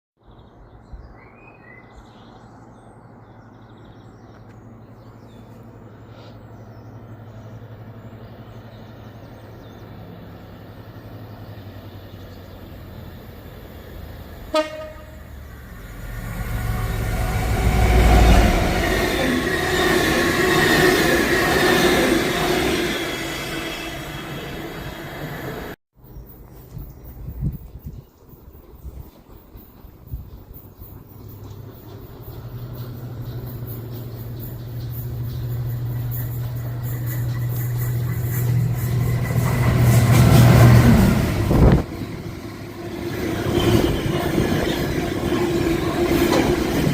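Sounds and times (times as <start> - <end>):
train approaching: 2.6 - 46.9
train wheels rumbling: 6.6 - 25.8, 27.0 - 46.9
train horn blast: 14.4 - 15.5.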